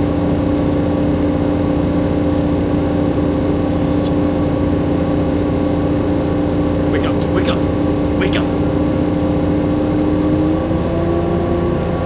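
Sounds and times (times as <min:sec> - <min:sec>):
train running inside carriage: 0:00.0 - 0:09.4.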